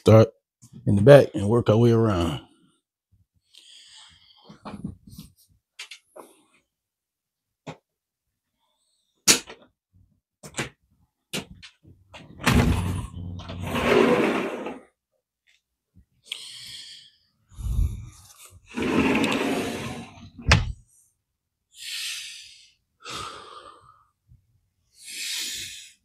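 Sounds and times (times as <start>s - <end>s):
door scraping open: 12.4s - 14.8s, 18.7s - 20.8s
door thump: 20.4s - 20.8s.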